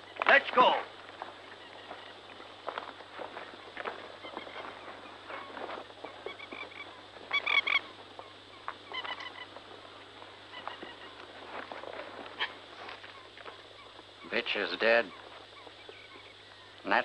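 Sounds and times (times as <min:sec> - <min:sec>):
birds honking: 0:00.0 - 0:17.0.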